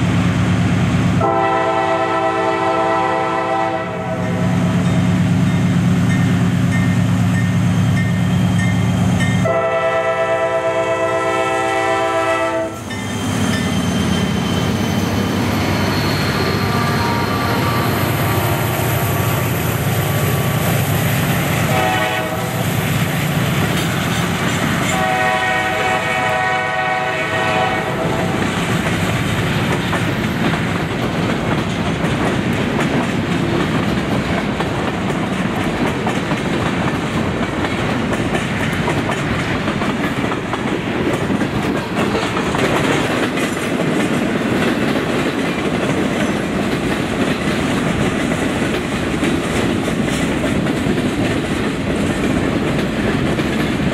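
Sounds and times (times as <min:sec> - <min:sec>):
train passing: 0:00.0 - 0:53.9
train horn blast: 0:01.2 - 0:04.6, 0:09.4 - 0:12.9, 0:16.5 - 0:18.8, 0:21.6 - 0:22.8, 0:24.8 - 0:28.4
wheels clicking over rails: 0:28.4 - 0:53.9.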